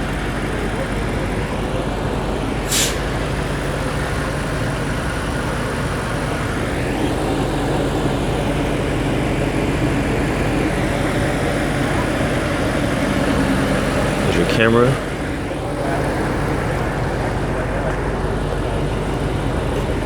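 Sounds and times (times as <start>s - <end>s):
traffic noise: 0.0s - 20.0s
air brake hiss: 2.6s - 3.1s.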